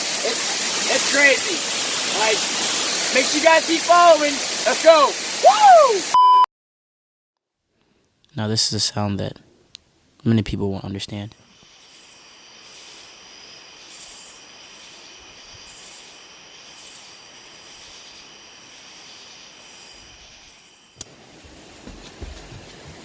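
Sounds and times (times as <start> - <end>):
waterfall rushing hiss: 0.0 - 6.2, 11.4 - 23.0
high insect trill: 0.2 - 5.1, 11.4 - 21.0.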